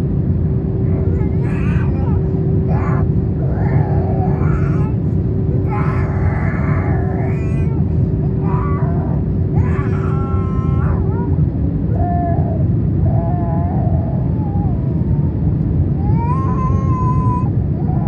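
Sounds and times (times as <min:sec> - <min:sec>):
airplane cabin engine rumble: 0:00.0 - 0:18.0
young child crying: 0:00.9 - 0:18.0.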